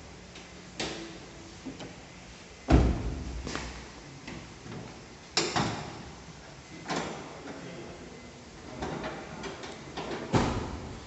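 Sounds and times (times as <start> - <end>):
clunks and knocks around a car: 2.7 - 3.6, 10.0 - 11.0.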